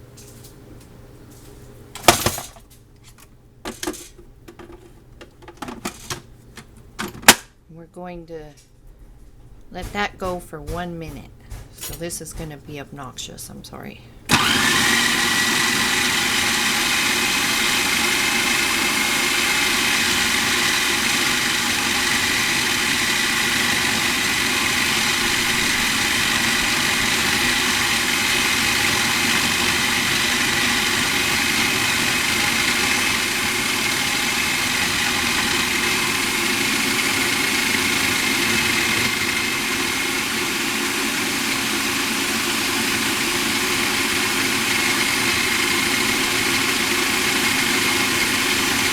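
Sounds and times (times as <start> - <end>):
food processor whining: 14.3 - 48.9.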